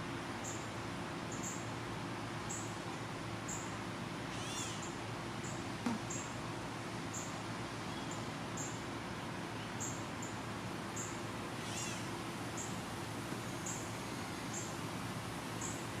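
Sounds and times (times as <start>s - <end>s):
catlike bird call: 4.3s - 4.9s.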